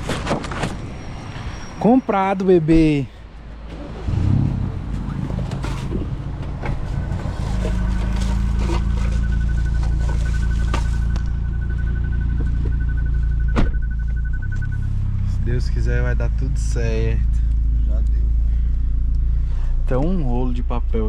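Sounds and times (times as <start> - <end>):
car engine running: 3.5 - 21.0
electronic warning chime beeping: 7.7 - 15.2.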